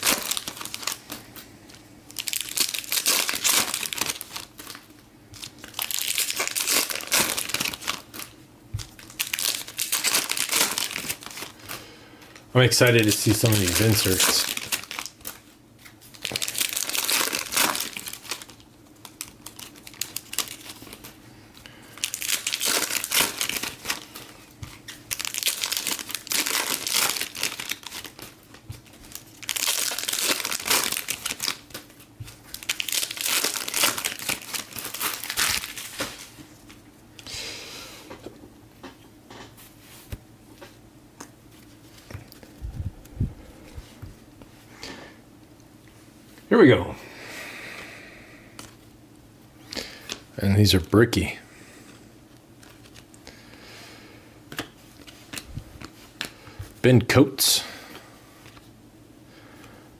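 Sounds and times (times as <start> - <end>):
cards and wrappers handled: 0.0 - 36.8, 52.3 - 53.2, 54.5 - 56.8
foil wrappers tearing and crinkling: 0.0 - 36.8, 52.5 - 53.2.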